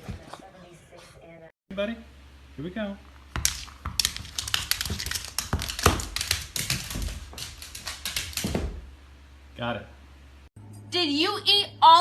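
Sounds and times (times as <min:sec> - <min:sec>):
rapid tapping and clicking: 0:03.4 - 0:08.6.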